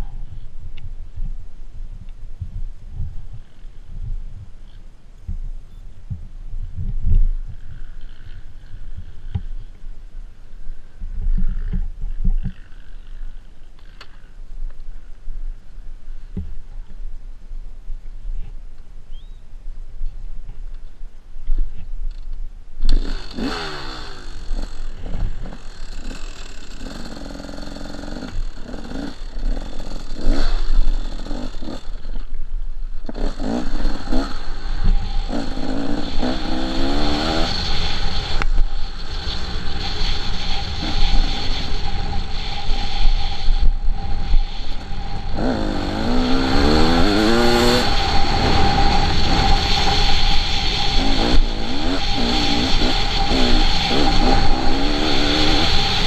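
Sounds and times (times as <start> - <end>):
dirt bike engine revving: 22.9 - 32.3, 33.0 - 56.0.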